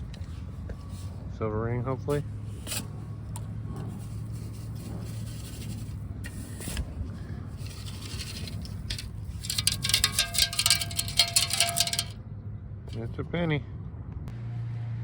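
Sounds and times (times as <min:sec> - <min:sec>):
scraping and digging ground: 0:00.0 - 0:12.2
metal detector clicks and tone: 0:07.6 - 0:12.2.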